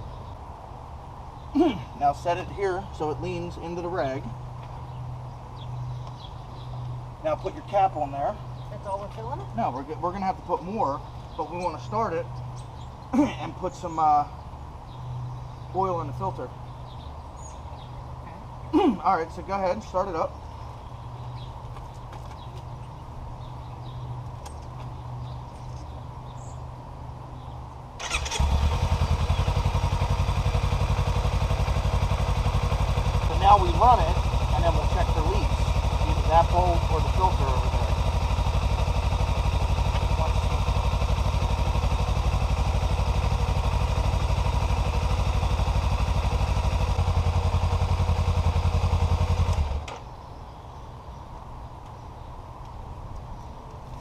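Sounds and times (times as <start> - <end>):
motorcycle engine starting and idling: 28.0 - 50.2.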